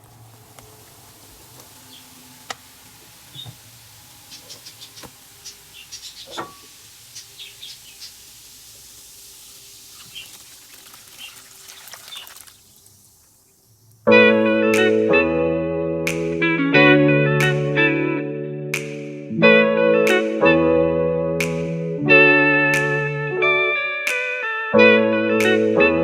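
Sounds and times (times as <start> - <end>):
faint steady hiss: 0.0 - 14.1
high chirps: 4.2 - 10.5.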